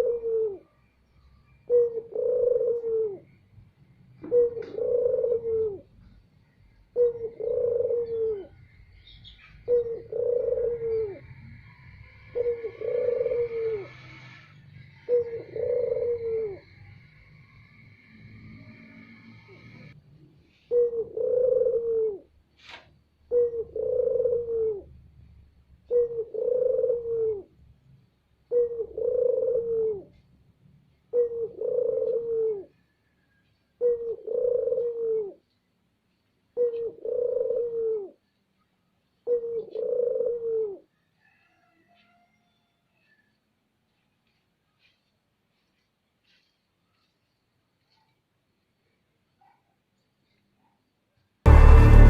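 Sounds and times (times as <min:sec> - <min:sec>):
dove cooing: 0:00.0 - 0:00.7, 0:01.6 - 0:03.4, 0:04.2 - 0:06.2, 0:06.9 - 0:17.8, 0:18.5 - 0:22.4, 0:23.2 - 0:25.2, 0:25.8 - 0:27.7, 0:28.4 - 0:30.3, 0:31.0 - 0:35.5, 0:36.5 - 0:38.3, 0:39.2 - 0:42.0.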